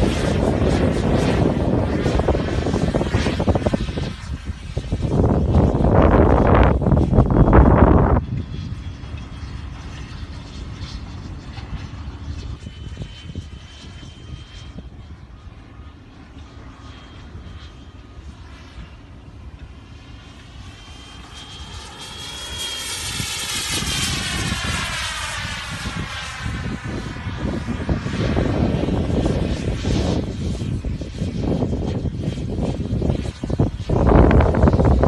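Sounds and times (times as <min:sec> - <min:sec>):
model jet fan whine: 0:00.0 - 0:35.0
wind rumble on microphone: 0:00.0 - 0:35.0.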